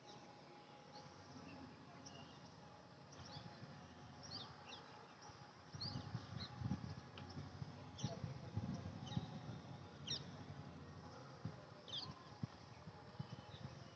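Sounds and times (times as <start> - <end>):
small birds chirping: 4.2 - 10.4, 11.8 - 13.9.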